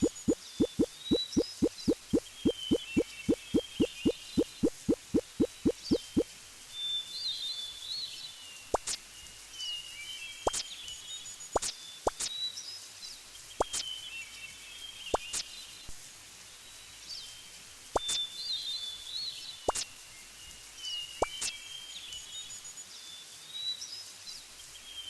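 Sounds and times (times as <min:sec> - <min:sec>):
sharp clicks or drips: 0:00.0 - 0:06.2
small birds chirping: 0:00.0 - 0:06.2.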